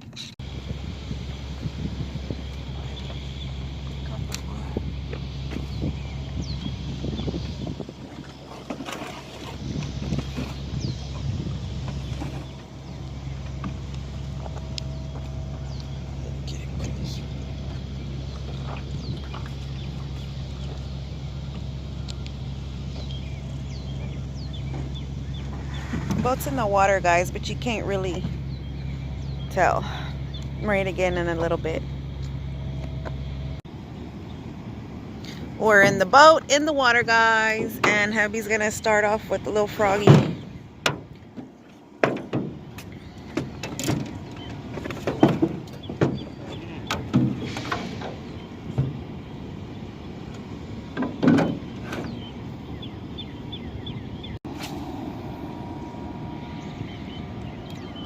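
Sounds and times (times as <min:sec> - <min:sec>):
truck engine idling: 0:00.0 - 0:58.0
bird chirps: 0:55.5 - 0:58.0.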